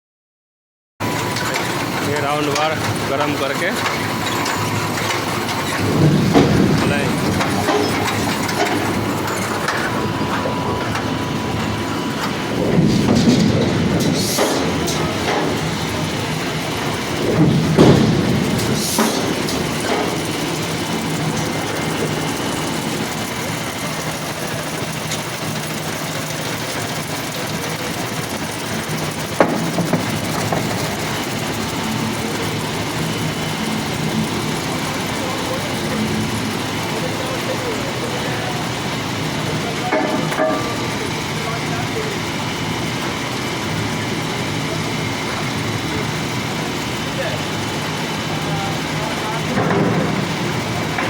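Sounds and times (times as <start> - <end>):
machinery rumbling and clattering: 1.0 - 51.0
metal knocks: 4.4 - 11.1, 17.2 - 23.2.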